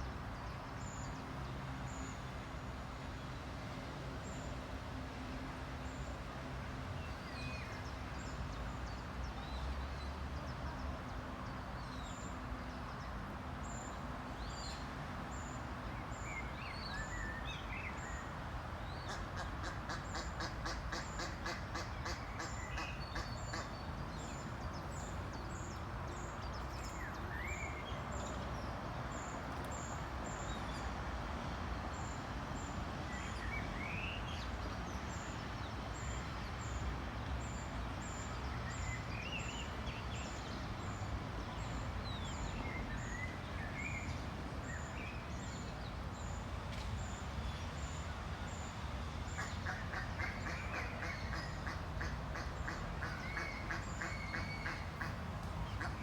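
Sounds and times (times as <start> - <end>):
steady background hiss: 0.0 - 56.0
ducks and ducklings peeping: 49.4 - 56.0.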